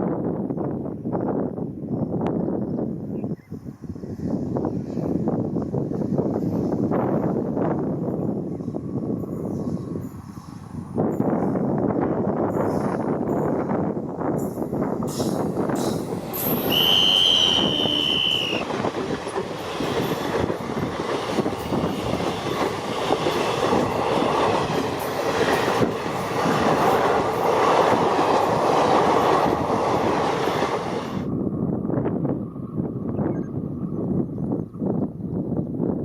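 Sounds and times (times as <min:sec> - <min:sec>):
train wheels clattering over rail joints: 0:14.4 - 0:16.8, 0:18.1 - 0:31.1
high-pitched wheel squeal: 0:16.4 - 0:18.7.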